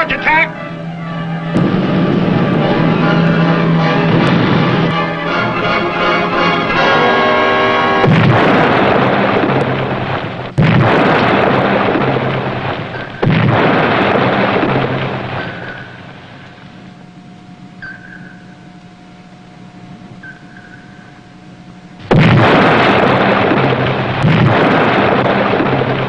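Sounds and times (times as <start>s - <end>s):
depth charge explosions: 0.0s - 17.0s, 22.0s - 26.0s
dramatic music: 0.0s - 19.6s.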